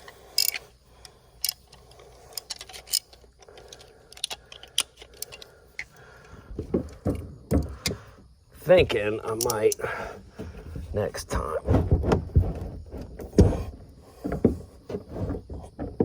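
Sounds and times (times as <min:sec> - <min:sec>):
hands clicking on hose fitting: 0:00.0 - 0:08.1, 0:09.2 - 0:09.9
dull thumps: 0:06.3 - 0:16.0.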